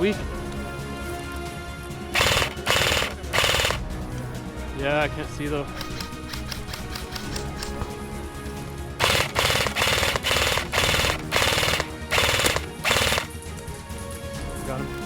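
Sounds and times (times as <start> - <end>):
airsoft gun firing full-auto bursts: 2.2 - 4.0, 5.8 - 8.0, 9.0 - 13.6.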